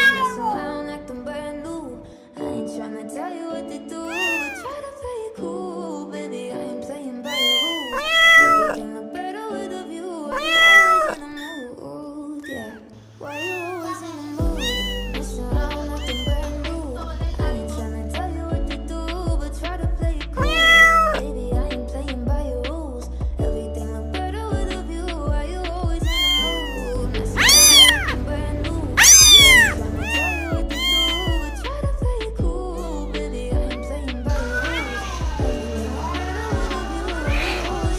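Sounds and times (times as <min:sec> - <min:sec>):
kitten meowing: 0:00.0 - 0:00.6, 0:04.1 - 0:04.8, 0:07.2 - 0:08.8, 0:10.3 - 0:11.7, 0:12.4 - 0:16.7, 0:20.4 - 0:21.2, 0:26.0 - 0:31.8, 0:33.7 - 0:37.9
background music with bass line: 0:14.4 - 0:37.9.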